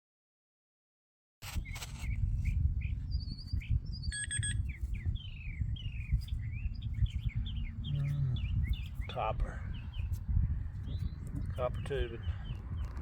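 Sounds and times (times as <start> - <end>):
low wind rumble on microphone: 1.4 - 13.0
songbirds chirping: 1.6 - 13.0
brief steady beep: 4.1 - 4.6.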